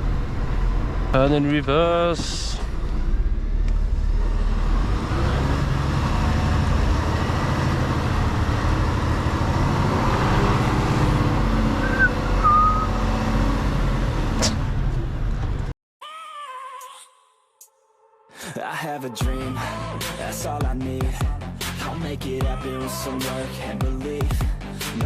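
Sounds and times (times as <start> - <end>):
diesel truck engine running: 0.0 - 15.7
short high chirps: 11.8 - 13.0.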